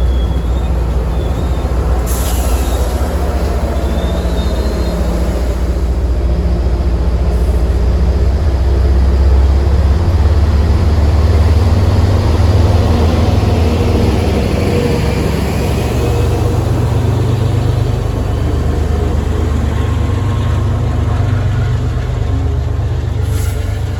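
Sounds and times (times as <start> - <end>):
diesel locomotive engine rumbling: 0.0 - 23.9.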